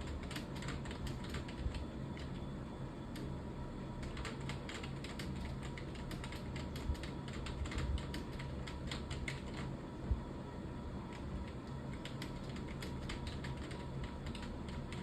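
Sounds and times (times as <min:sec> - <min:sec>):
computer keyboard typing: 0:00.0 - 0:02.4, 0:04.0 - 0:09.7, 0:11.1 - 0:15.0.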